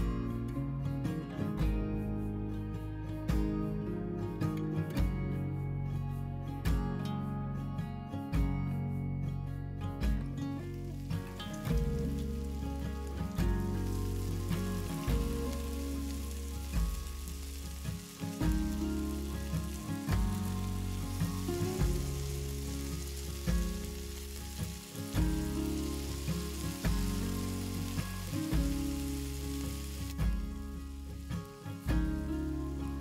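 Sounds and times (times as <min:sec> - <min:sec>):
background music: 0:00.0 - 0:33.0
food sizzling in frying pans: 0:10.6 - 0:33.0.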